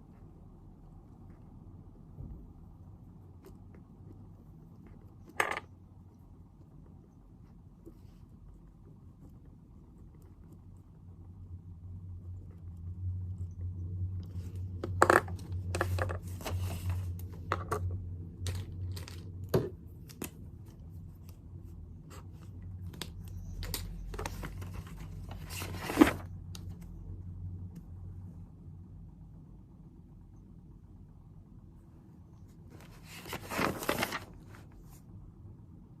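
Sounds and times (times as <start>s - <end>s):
low steady hum: 0.0s - 36.0s
papers rustling and scraping: 14.3s - 17.8s, 22.0s - 26.8s, 32.5s - 35.0s.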